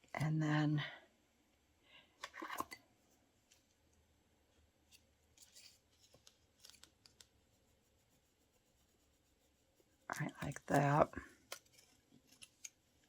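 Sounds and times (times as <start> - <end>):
paper rustling: 5.4 - 7.4, 10.4 - 13.0
scissors snipping paper: 10.3 - 12.9.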